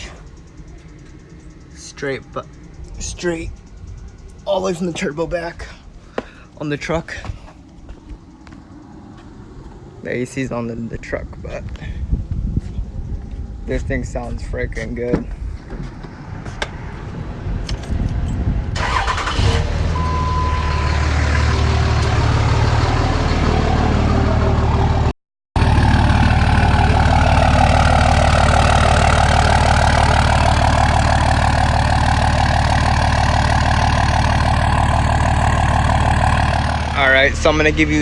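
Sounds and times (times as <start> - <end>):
diesel engine running: 12.9 - 38.0.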